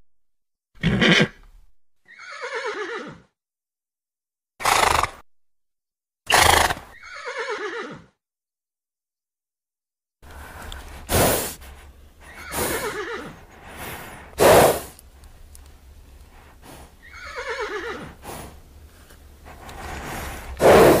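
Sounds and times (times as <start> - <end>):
horse whinnying: 0.8 - 1.4, 2.0 - 3.3, 6.3 - 8.1, 12.2 - 13.5, 17.0 - 18.2
horse snorting: 6.3 - 7.0, 10.6 - 21.0.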